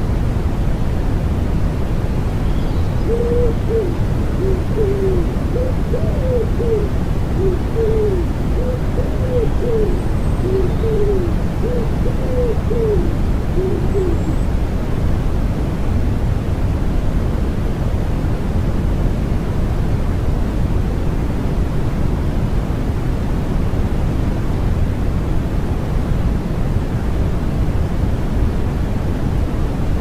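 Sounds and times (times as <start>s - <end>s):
white noise: 0.0s - 30.0s
pigeon cooing: 3.0s - 14.4s.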